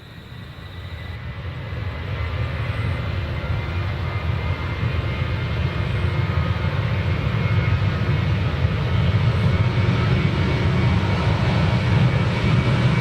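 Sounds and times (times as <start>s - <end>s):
faint high engine whine: 0.0s - 13.0s
jet engines rumbling: 0.0s - 13.0s.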